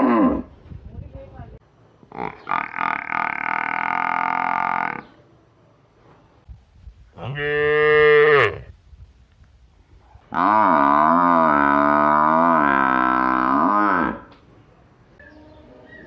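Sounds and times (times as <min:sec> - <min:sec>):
cow mooing: 0:02.1 - 0:05.0, 0:10.3 - 0:14.3.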